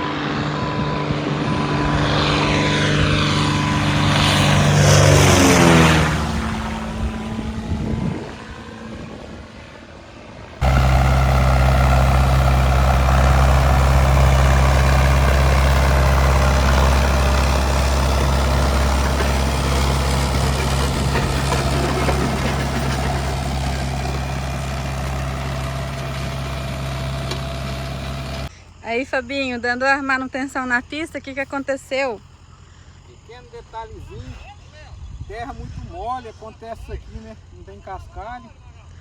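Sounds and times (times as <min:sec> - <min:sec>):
vehicle passing: 0:00.0 - 0:28.5
tractor engine running: 0:10.0 - 0:28.5.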